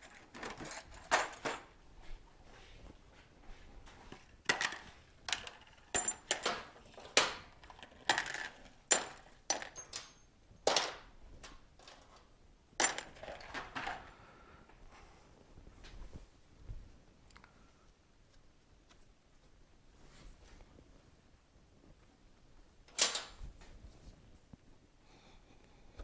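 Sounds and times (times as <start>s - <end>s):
metal tools clinking: 0.0s - 1.7s, 4.5s - 11.0s, 12.8s - 14.0s.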